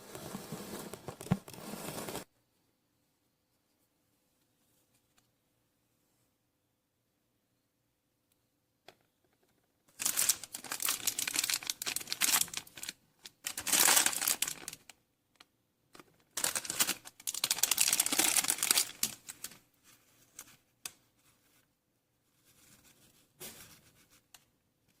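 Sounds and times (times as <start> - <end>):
crinkling and crackling: 8.9 - 21.7.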